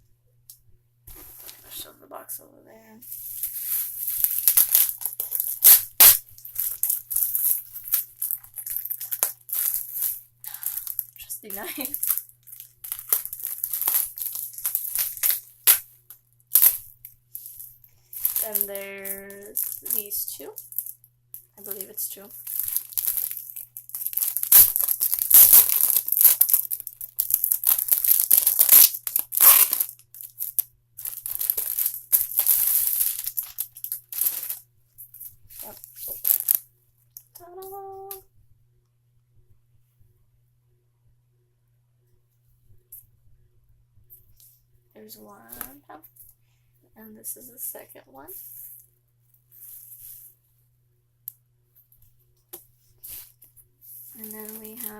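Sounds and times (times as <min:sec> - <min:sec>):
packaging crinkling and rustling: 0:03.0 - 0:15.9, 0:16.5 - 0:36.6, 0:54.0 - 0:54.9.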